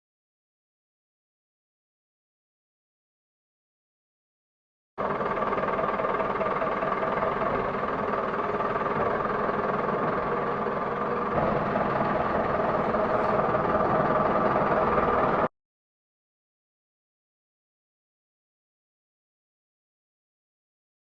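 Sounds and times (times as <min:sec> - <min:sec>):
motor running steadily: 0:05.0 - 0:15.5.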